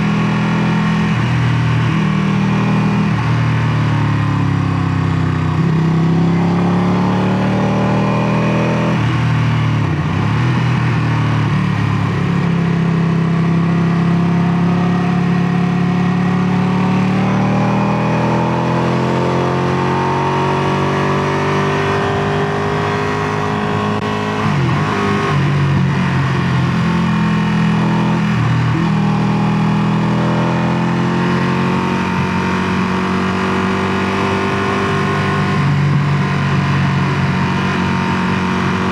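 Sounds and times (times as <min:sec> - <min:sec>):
motorcycle engine running: 0:20.2 - 0:38.9.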